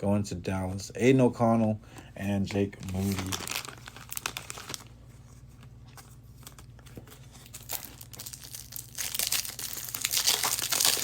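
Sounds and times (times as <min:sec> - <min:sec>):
plastic wrapper crinkling: 0:02.5 - 0:11.0.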